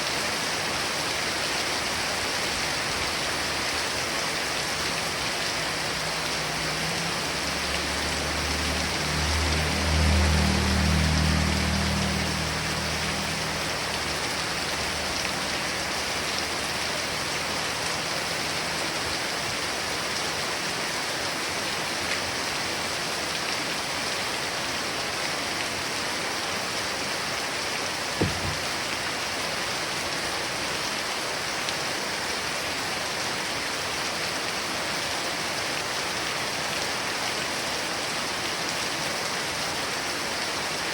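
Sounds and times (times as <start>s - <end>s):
heavy rain falling: 0.0s - 40.9s
sharp knock: 28.2s - 28.6s.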